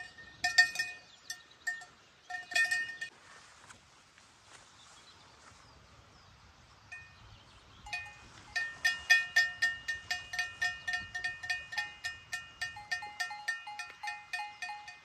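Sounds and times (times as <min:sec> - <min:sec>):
cowbells clanking: 0:00.0 - 0:03.1, 0:06.9 - 0:07.2, 0:07.8 - 0:15.0.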